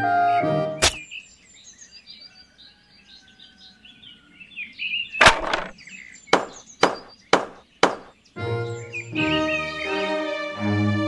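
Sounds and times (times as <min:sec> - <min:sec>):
small birds chirping: 0:00.0 - 0:10.3
sharp knocks: 0:05.2 - 0:05.8, 0:06.4 - 0:08.1.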